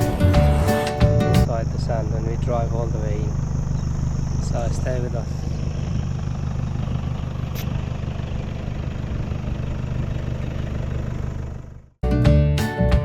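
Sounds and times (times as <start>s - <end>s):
music: 0.0s - 1.5s, 12.0s - 13.0s
vehicle engine idling: 0.0s - 12.0s.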